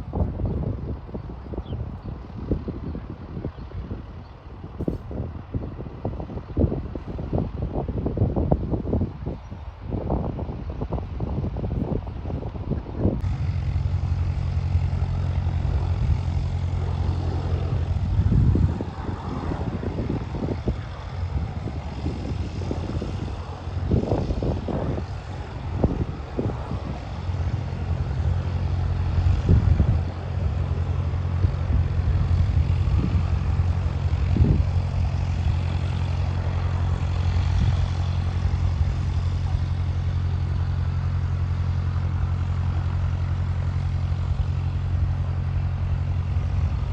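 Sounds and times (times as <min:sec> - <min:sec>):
propeller airplane engine droning: 0:00.0 - 0:46.9.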